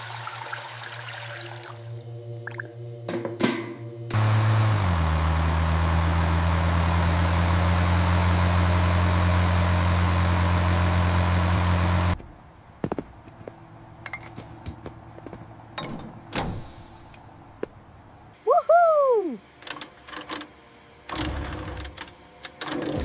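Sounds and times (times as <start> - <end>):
machine motor humming: 3.8 - 12.2.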